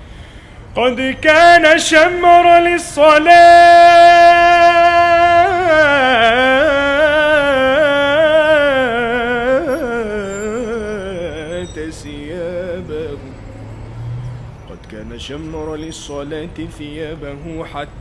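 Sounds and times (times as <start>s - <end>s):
man singing solo: 0.8s - 13.3s.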